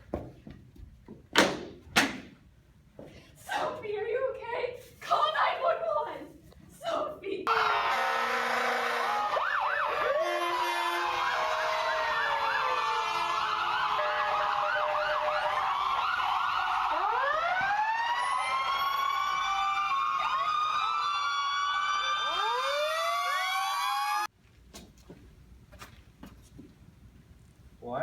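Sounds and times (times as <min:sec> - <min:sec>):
emergency sirens yelping and wailing: 0:07.5 - 0:24.3.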